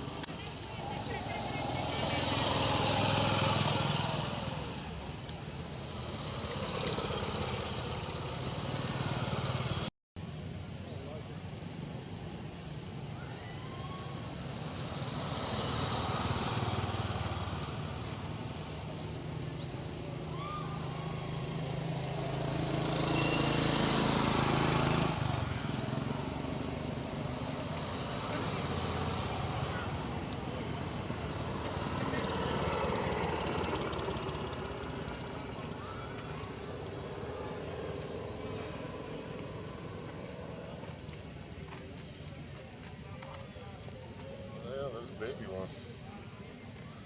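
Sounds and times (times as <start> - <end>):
outdoor noise: 0.0 - 47.0
vehicle engine running: 20.9 - 44.4.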